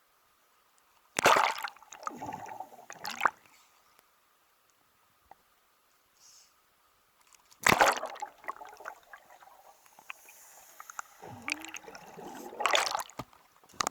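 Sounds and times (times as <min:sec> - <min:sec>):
person diving into water splash: 0:01.2 - 0:03.4, 0:07.6 - 0:09.5, 0:10.1 - 0:13.4
water sloshing and dripping: 0:01.2 - 0:03.5, 0:07.2 - 0:13.8.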